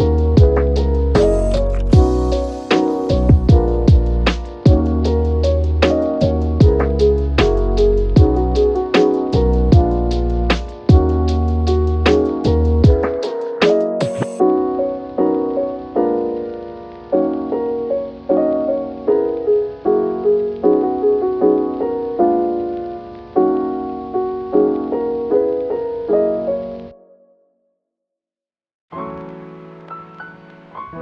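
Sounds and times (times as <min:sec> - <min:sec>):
soft piano music: 0:00.0 - 0:27.4, 0:28.9 - 0:31.0.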